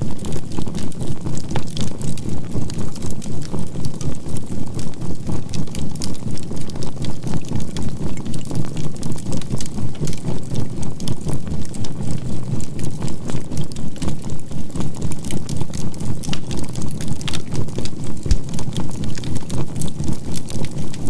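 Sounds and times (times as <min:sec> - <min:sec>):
charcoal fire crackling and popping: 0:14.8 - 0:20.7.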